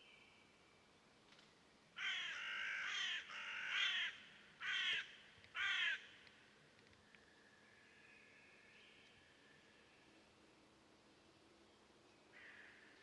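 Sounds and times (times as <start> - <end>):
bird cawing: 2.0 - 6.2, 12.3 - 12.9.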